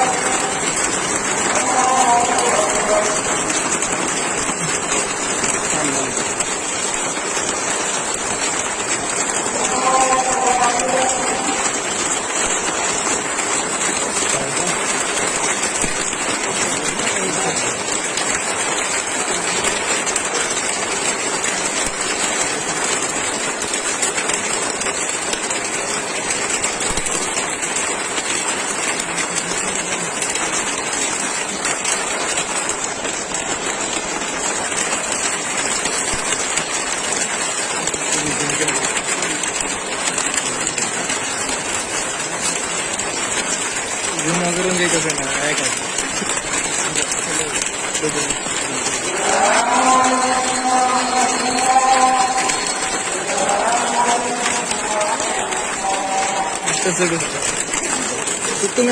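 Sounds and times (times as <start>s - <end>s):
rain falling: 0.0s - 58.9s.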